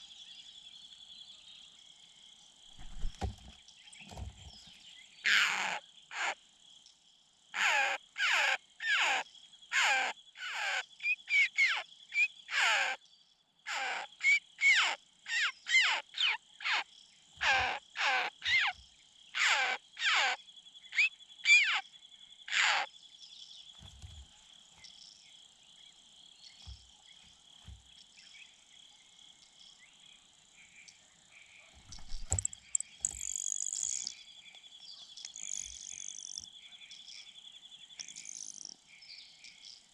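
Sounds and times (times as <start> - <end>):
insects chirring: 0.0 - 39.9
bird harsh cawing calls: 5.3 - 6.4, 7.6 - 13.0, 17.4 - 20.4.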